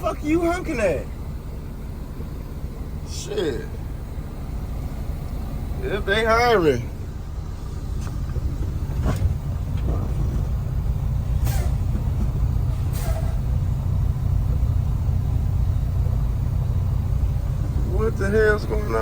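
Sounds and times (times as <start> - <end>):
diesel engine rumble: 0.0 - 19.0
short air hisses: 11.4 - 11.8, 12.9 - 13.4.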